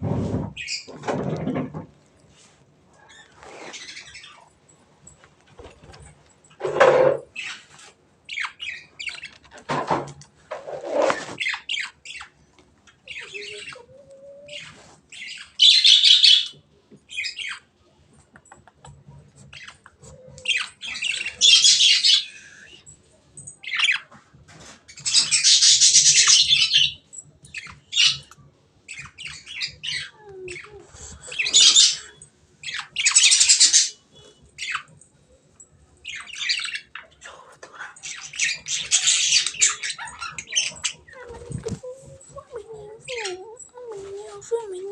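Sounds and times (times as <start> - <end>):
lovebirds chirping and chattering: 0.5 - 1.8, 2.9 - 4.6, 5.2 - 10.6, 11.2 - 17.8, 18.7 - 44.9
bird harsh screeches: 3.1 - 4.4.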